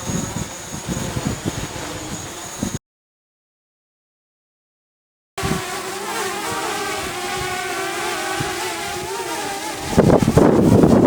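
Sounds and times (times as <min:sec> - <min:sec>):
drone propellers whining: 0:00.0 - 0:02.8, 0:05.4 - 0:11.0
wind gust on microphone: 0:00.0 - 0:02.8, 0:05.4 - 0:11.0.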